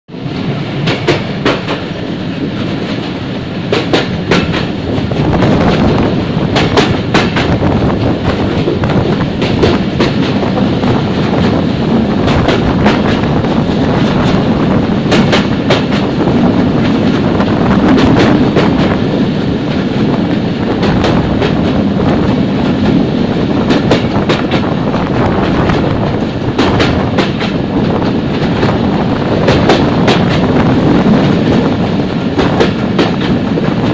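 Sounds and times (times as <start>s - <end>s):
train rumble: 0.1s - 33.9s
train wheels clattering over rails: 0.1s - 33.9s.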